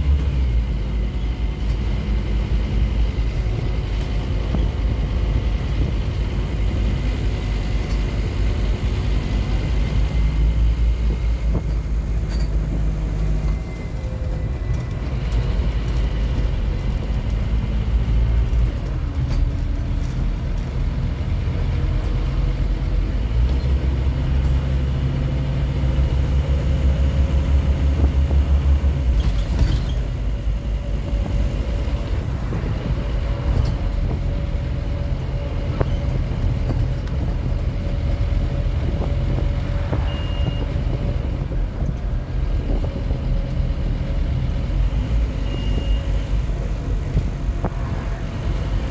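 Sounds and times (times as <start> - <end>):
bus diesel engine droning: 0.0 - 48.9
short high beeps: 40.0 - 40.7, 45.4 - 46.1.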